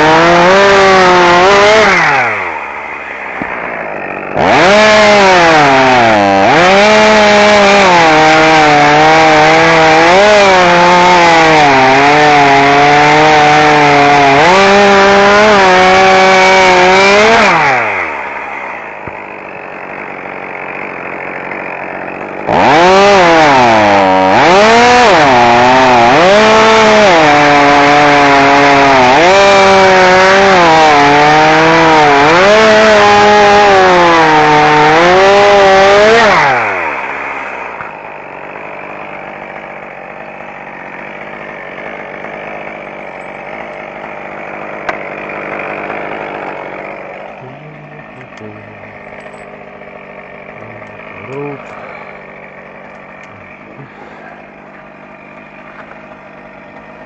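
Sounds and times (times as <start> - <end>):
chainsaw revving under load: 0.0 - 57.0.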